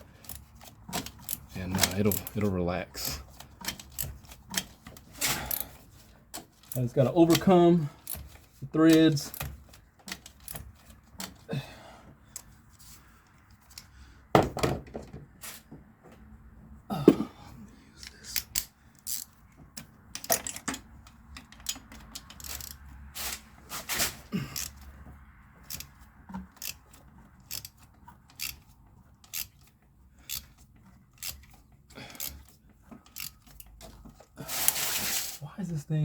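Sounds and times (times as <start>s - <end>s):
hand tools clicking: 0.2s - 2.4s, 20.2s - 22.9s, 24.4s - 25.0s, 25.6s - 34.0s.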